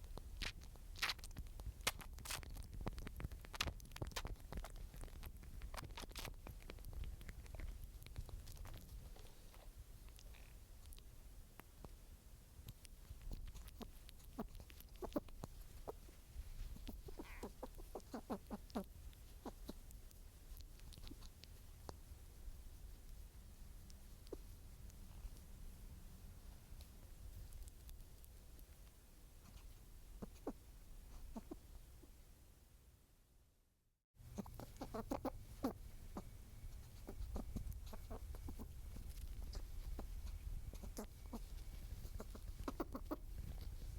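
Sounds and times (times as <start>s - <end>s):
birds calling: 16.8s - 19.6s, 34.3s - 38.9s.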